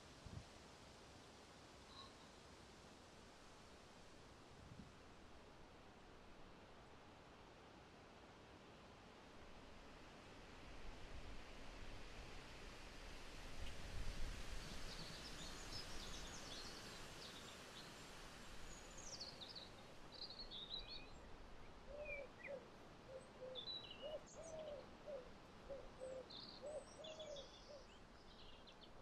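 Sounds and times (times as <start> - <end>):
faint birdsong chirps and trills: 1.8 - 2.4, 13.5 - 29.0.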